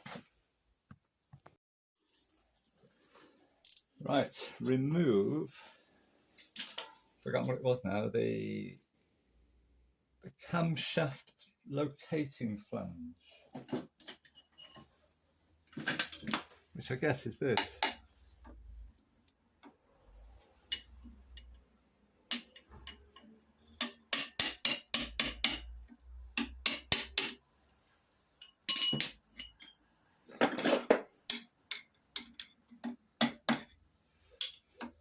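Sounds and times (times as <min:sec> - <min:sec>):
metal parts rattling: 0:03.6 - 0:03.9
metal tools clinking: 0:03.6 - 0:03.9, 0:06.4 - 0:07.0, 0:14.0 - 0:14.9, 0:15.8 - 0:16.6, 0:20.7 - 0:21.6, 0:28.4 - 0:32.8, 0:34.4 - 0:34.9.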